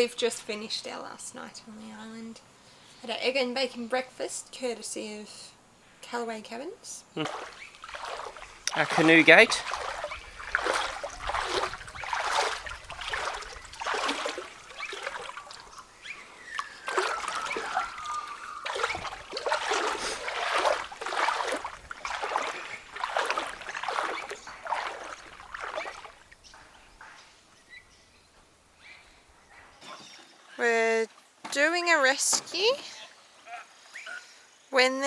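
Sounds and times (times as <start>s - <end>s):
canoe paddle splashing water: 7.2s - 26.8s
water trickling off paddle: 7.2s - 26.9s
short falling squeal: 16.4s - 19.1s.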